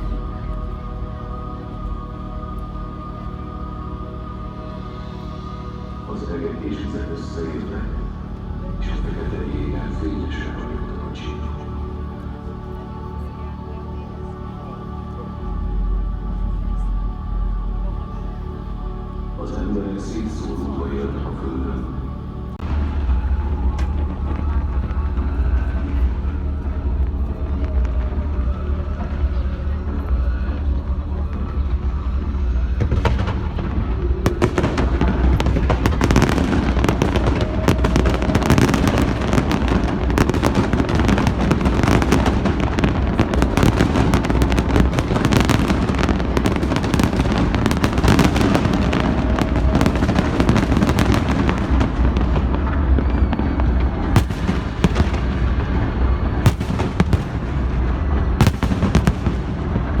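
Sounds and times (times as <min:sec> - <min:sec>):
steady low rumble: 0:00.0 - 1:00.0
fireworks bursting: 0:31.4 - 1:00.0.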